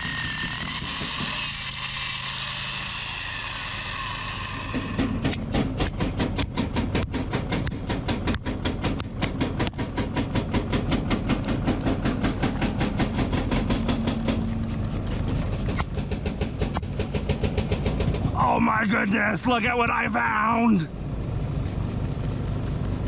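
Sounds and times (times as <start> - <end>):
hydraulic hammer pounding rock: 0.0 - 18.4
diesel engine humming: 4.3 - 23.0.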